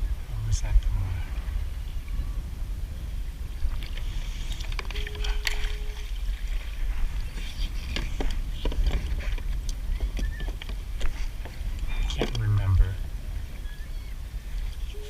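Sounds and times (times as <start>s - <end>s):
steady low rumble: 0.0s - 10.0s, 10.8s - 15.0s
paddle splashes and drips: 3.6s - 11.5s.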